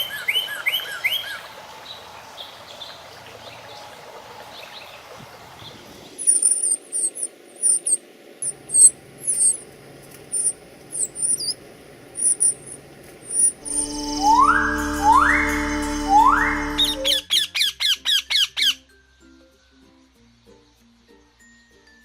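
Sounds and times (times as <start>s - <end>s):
faint birdsong: 0.0s - 22.0s
small bird high chirps: 5.6s - 9.7s, 10.3s - 11.6s, 12.2s - 19.0s.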